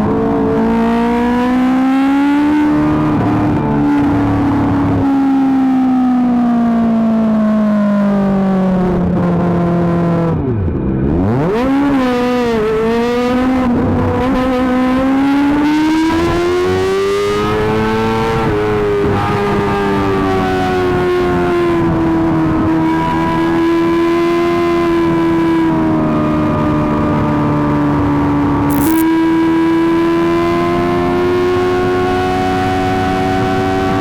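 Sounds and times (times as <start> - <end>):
motorcycle engine revving: 28.7 - 29.0.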